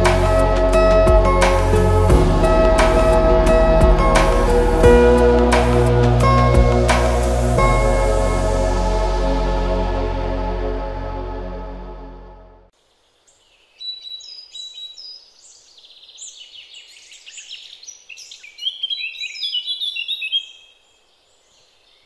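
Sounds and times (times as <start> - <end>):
ambient music sustained tones: 0.0 - 12.7
birds chirping and whistling: 13.8 - 20.8.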